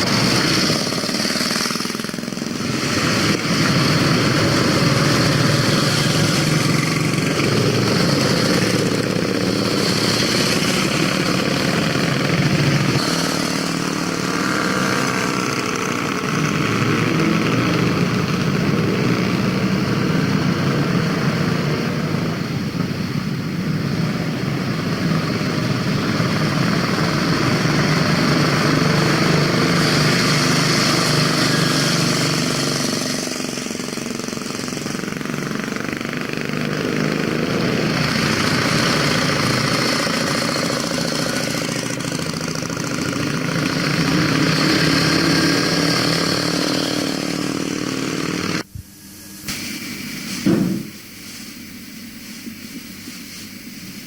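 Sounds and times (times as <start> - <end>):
motorcycle engines rumbling: 0.0 - 49.5.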